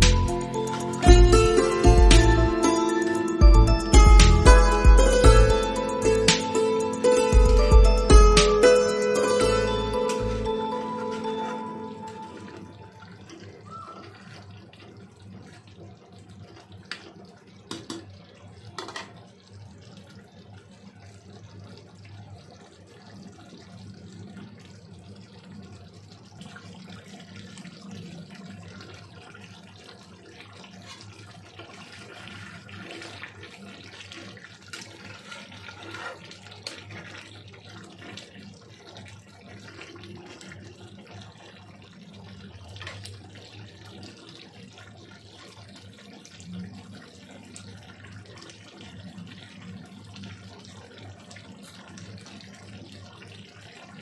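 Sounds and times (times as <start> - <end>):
low hum: 0.0 - 2.8
running water: 0.0 - 54.0.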